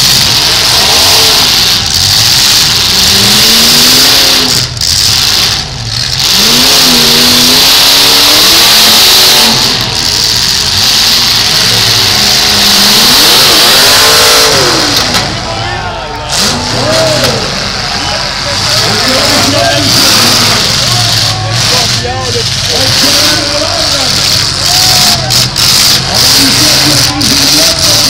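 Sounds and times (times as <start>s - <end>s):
car engines revving hard: 0.0s - 28.0s.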